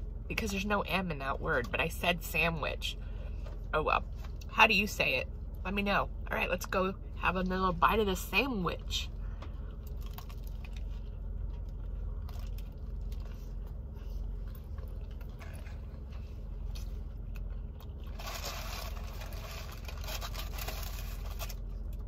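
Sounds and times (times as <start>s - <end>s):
steady low rumble: 0.0s - 22.0s
chewing sandwich with soft crunching: 9.4s - 22.0s.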